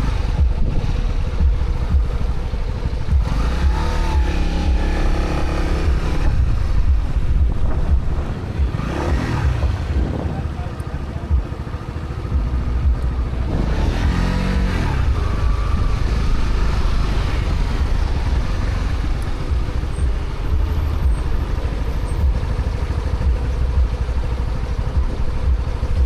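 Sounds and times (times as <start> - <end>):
wind noise: 0.0 - 5.1, 5.7 - 11.7, 12.3 - 22.6
motorcycle engine running: 0.0 - 26.0.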